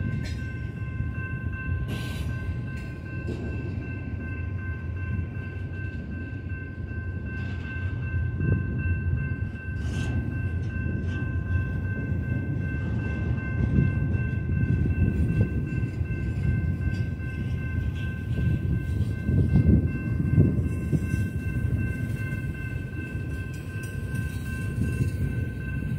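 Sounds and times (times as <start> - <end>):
train clanks: 0.0 - 25.9
train wheels rumbling on rail: 0.0 - 25.9.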